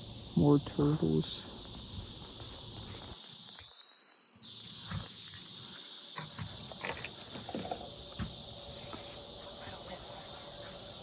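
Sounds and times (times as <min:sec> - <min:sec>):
insects chirping chorus: 0:00.0 - 0:11.0.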